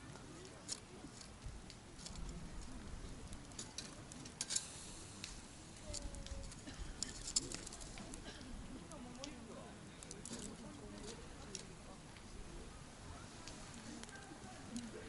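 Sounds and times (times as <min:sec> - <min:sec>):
campfire crackling: 0:00.0 - 0:15.0
burning wood popping: 0:00.1 - 0:12.4.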